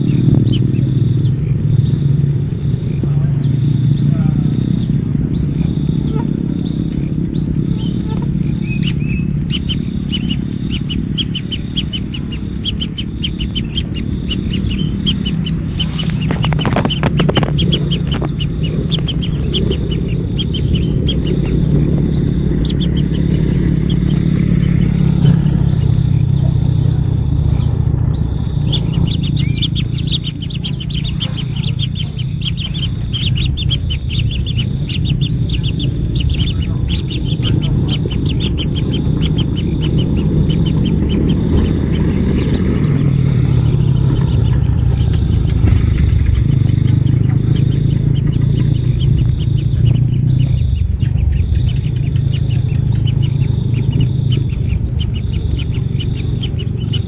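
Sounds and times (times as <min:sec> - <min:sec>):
birds chirping: 0:00.0 - 0:57.0
loud low rumble: 0:00.0 - 0:57.0.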